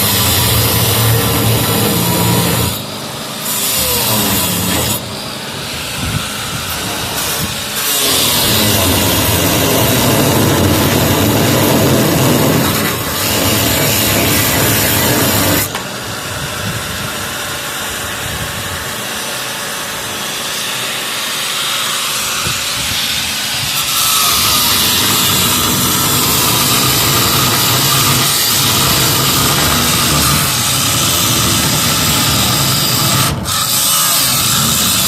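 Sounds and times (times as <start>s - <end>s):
power tool hissing: 0.0s - 35.0s.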